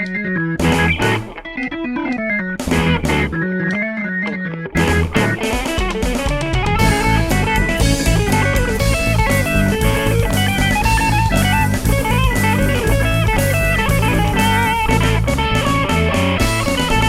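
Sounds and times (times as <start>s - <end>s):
bass: 0.0s - 1.4s, 2.6s - 3.8s, 4.6s - 5.5s, 6.2s - 17.0s
drums: 0.0s - 3.5s, 4.7s - 17.0s
electric guitar lead: 0.0s - 17.0s
keyboards: 0.0s - 17.0s.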